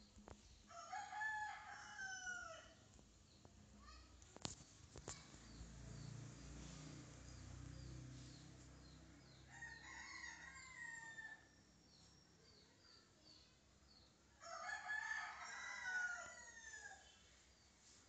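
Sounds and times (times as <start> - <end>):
small birds chirping: 3.1 - 14.2.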